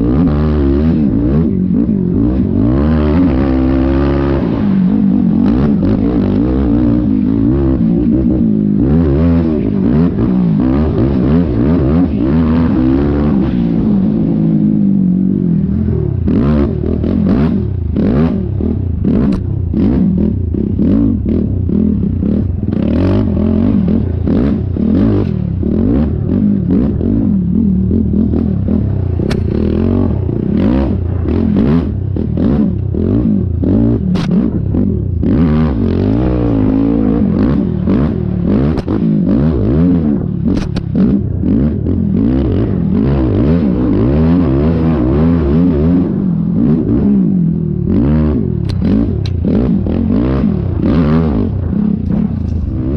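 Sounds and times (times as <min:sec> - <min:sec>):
quad engine revving: 0:00.0 - 0:52.9
knocks and clatter over bumps: 0:28.2 - 0:41.9, 0:48.6 - 0:52.9.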